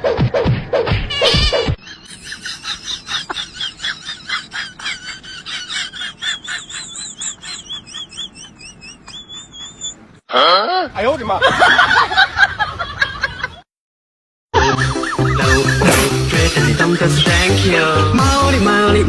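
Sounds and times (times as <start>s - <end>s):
bird chirping: 6.4s - 10.1s.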